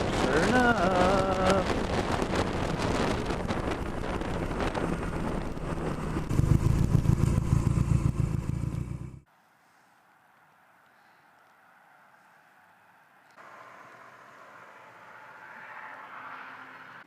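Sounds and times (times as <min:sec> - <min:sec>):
wind buffeting microphone: 0:00.0 - 0:09.2
motorcycle engine running: 0:00.0 - 0:09.3.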